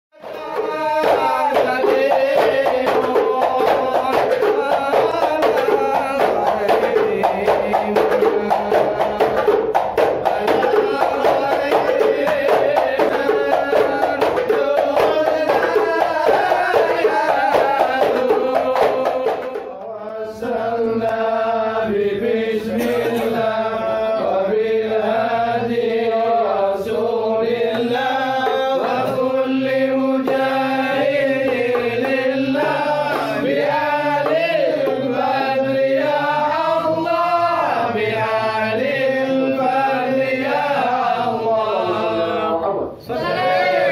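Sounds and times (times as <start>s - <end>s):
hand-struck frame drums: 0.2s - 19.9s, 26.8s - 42.0s
men chanting together: 0.2s - 43.9s.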